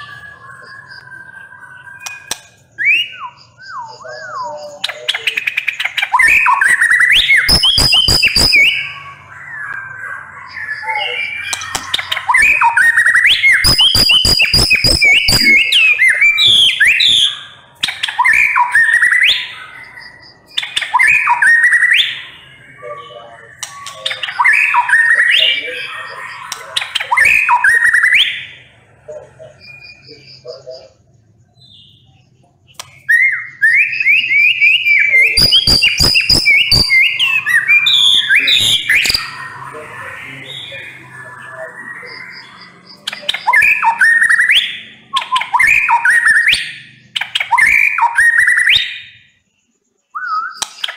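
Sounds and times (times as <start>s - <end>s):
bird singing whistled notes: 0.0s - 50.9s
sharp clicking bird notes: 1.9s - 8.9s, 10.8s - 16.5s, 23.5s - 25.3s, 26.3s - 28.2s, 32.6s - 33.1s, 34.0s - 39.4s, 42.1s - 48.8s, 50.3s - 50.9s
sharp clicks: 2.0s - 2.6s, 11.5s - 12.3s, 23.6s - 24.4s, 32.7s - 33.0s, 50.5s - 50.9s.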